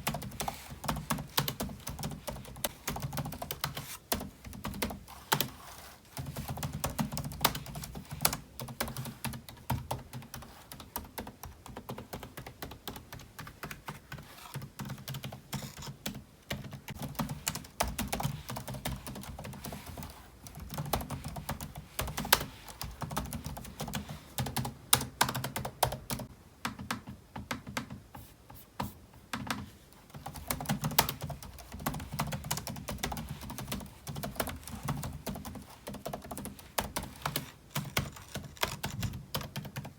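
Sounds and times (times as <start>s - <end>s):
fast typing on keyboard: 0.0s - 28.0s, 30.1s - 39.9s.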